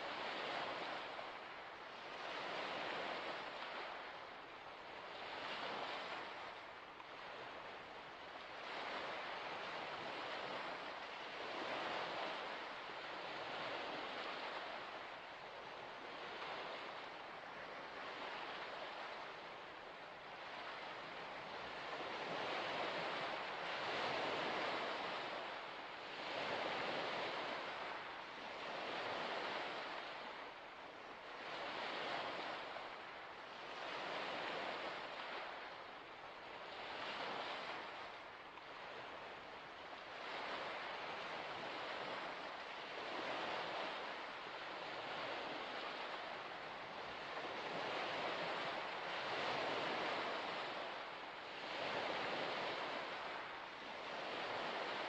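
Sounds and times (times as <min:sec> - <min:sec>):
small waves washing onto shore: 0:00.0 - 0:55.0.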